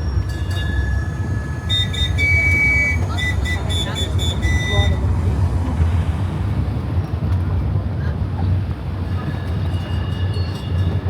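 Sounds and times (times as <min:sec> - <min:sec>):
rolling rumble: 0:00.0 - 0:09.1
low engine drone: 0:00.1 - 0:08.9.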